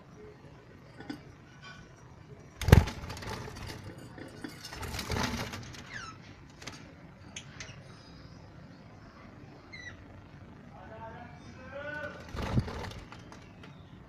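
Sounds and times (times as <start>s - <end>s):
birds fluttering: 0.9s - 7.9s, 11.8s - 14.0s
rapid rattling: 2.6s - 7.0s, 12.0s - 13.8s.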